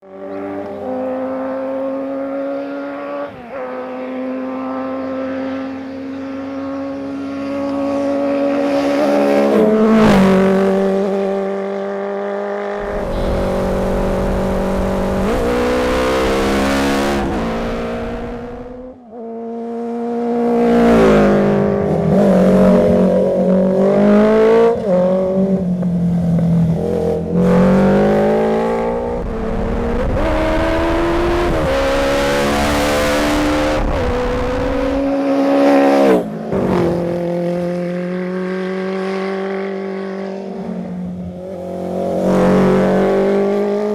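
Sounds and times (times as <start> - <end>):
motorcycle engine revving: 4.6 - 36.3.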